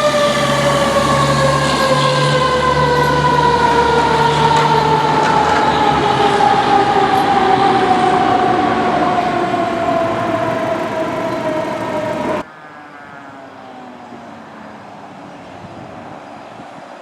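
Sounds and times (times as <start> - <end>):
heavy engine rumble: 0.0 - 12.4
fire truck siren: 0.0 - 16.7.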